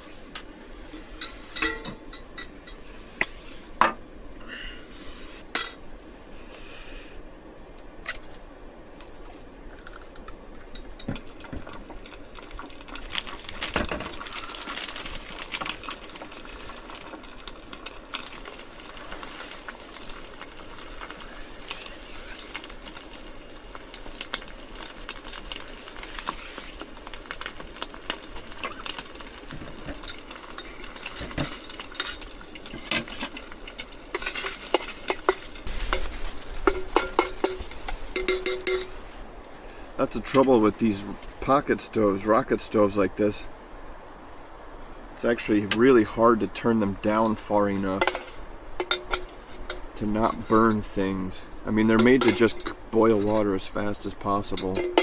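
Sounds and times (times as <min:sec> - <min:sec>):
metal utensil scraping a pan: 0:01.0 - 0:03.8, 0:04.9 - 0:05.8, 0:29.7 - 0:39.1, 0:47.0 - 0:51.1, 0:51.9 - 0:53.7, 0:54.4 - 0:55.0
egg sizzling in a pan: 0:09.2 - 0:39.3, 0:47.0 - 0:53.3.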